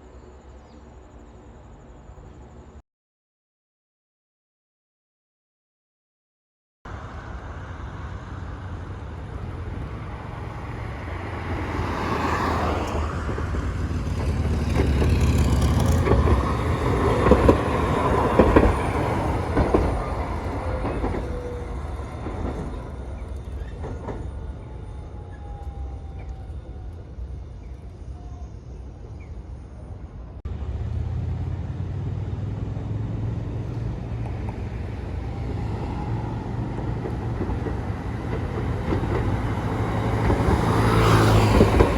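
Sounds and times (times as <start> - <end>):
train passing: 6.9 - 41.9
train wheels knocking: 13.2 - 21.6.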